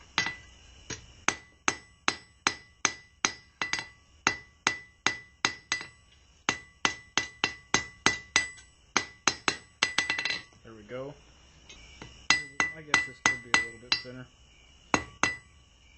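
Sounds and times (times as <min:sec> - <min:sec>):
hammer striking steel on anvil: 0:00.2 - 0:10.5, 0:12.0 - 0:14.2, 0:14.9 - 0:15.5
anvil ringing: 0:01.3 - 0:10.5.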